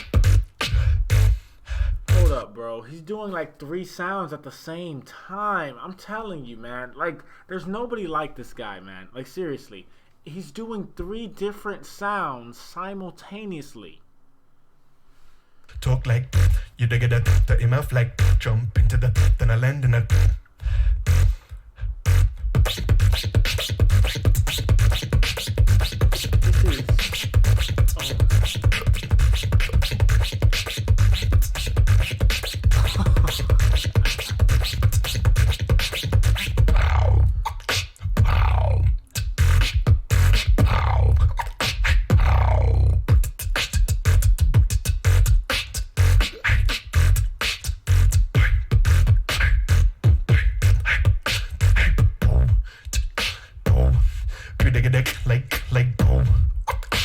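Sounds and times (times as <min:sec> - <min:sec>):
human beatboxing: 0:00.0 - 0:02.5, 0:15.7 - 0:57.0.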